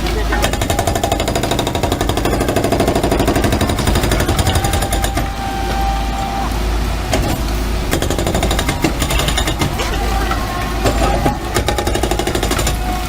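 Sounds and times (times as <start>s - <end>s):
demolition breaker hammering: 0.0s - 13.0s
low engine rumble: 0.0s - 13.0s.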